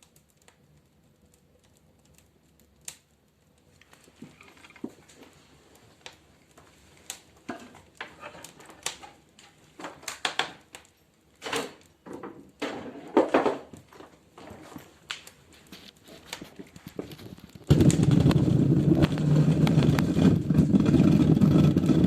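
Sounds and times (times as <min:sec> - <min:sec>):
firewood clattering in stove: 0:06.0 - 0:22.0.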